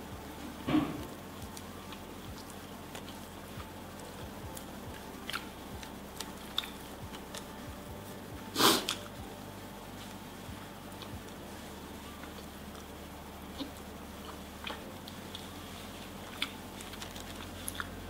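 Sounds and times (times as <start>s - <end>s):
faint steady hum: 0.0s - 18.0s
soft chewing: 0.0s - 18.0s
wet mouth clicks: 6.5s - 6.8s
sniff-like burst: 8.5s - 9.0s.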